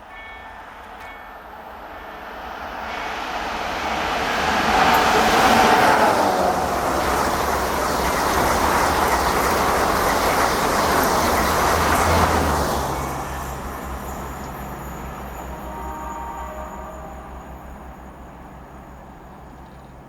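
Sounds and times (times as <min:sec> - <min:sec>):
train passing at speed: 0:00.0 - 0:20.0.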